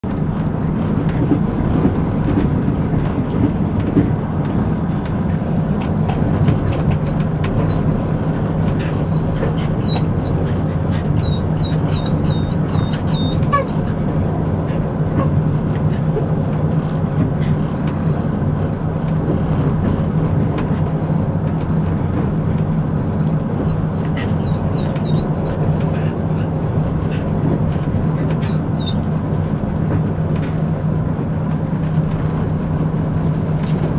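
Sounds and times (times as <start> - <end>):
passenger train rumbling: 0.0 - 33.9
short high-pitched squeaks: 6.5 - 7.9, 8.8 - 14.1, 23.6 - 26.2, 28.4 - 29.1.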